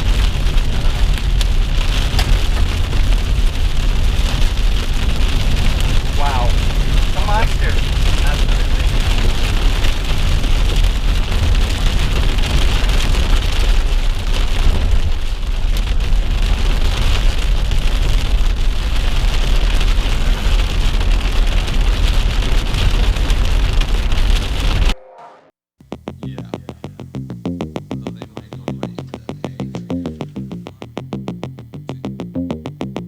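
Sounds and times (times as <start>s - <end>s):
heavy rain rushing: 0.0s - 24.9s
deep rumble: 0.0s - 25.0s, 25.8s - 33.0s.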